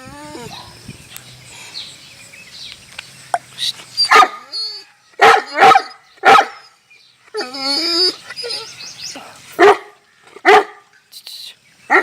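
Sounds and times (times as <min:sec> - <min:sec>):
dog whining: 0:00.0 - 0:00.7, 0:04.0 - 0:08.8
dog barking: 0:04.1 - 0:04.4, 0:05.2 - 0:06.6, 0:09.6 - 0:10.8.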